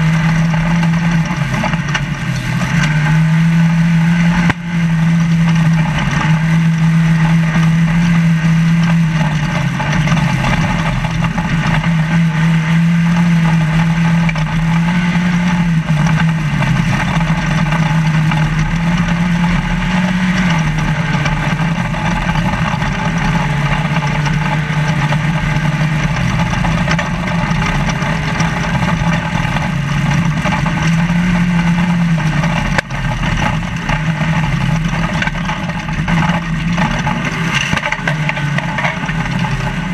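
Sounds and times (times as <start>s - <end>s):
drivetrain and road noise: 0.0s - 39.9s
race truck engine revving: 0.0s - 39.9s.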